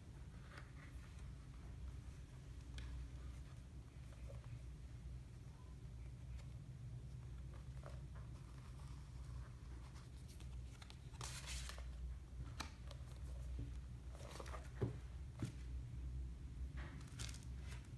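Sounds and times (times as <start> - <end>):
book and wrapping rustling: 7.1 - 15.7, 16.9 - 17.9.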